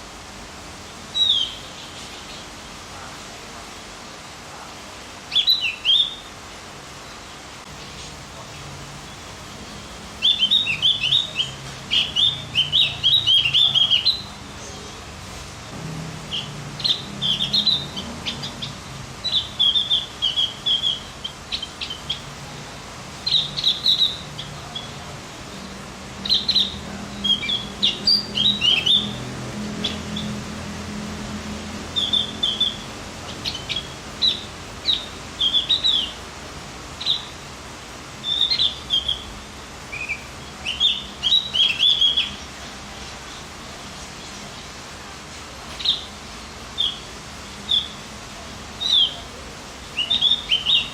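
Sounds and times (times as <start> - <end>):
bird chattering song: 9.0 - 15.0, 16.3 - 22.4, 23.2 - 30.4, 32.0 - 36.2, 37.0 - 37.4, 38.2 - 43.5, 46.8 - 48.0, 48.8 - 49.3, 49.9 - 50.9.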